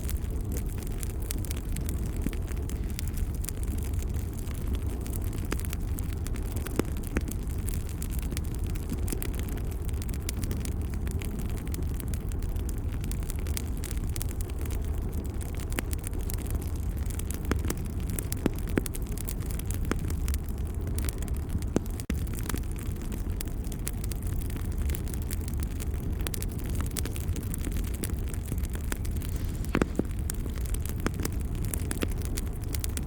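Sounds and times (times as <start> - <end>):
wood fire crackling: 0.0 - 33.0
sharp pops and snaps: 17.1 - 20.2, 26.4 - 33.0.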